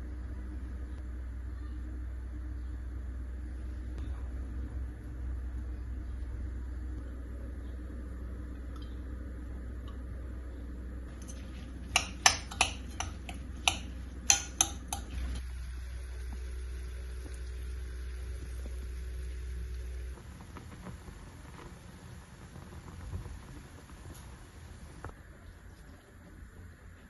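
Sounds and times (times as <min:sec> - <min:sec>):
steady low hum: 0:00.0 - 0:27.0
dishes and cutlery clinking: 0:11.1 - 0:15.4.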